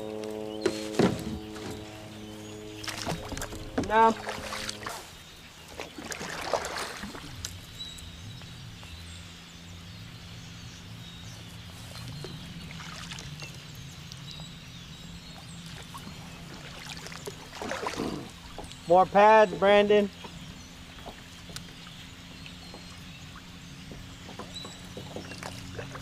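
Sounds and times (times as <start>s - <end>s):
water and paddle sounds: 0.0s - 26.0s
knocks against kayak hull: 0.6s - 1.8s.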